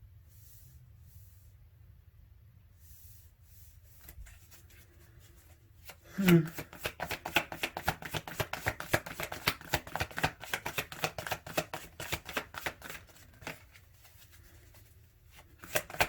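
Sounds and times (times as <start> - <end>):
cards being shuffled: 4.0 - 16.0.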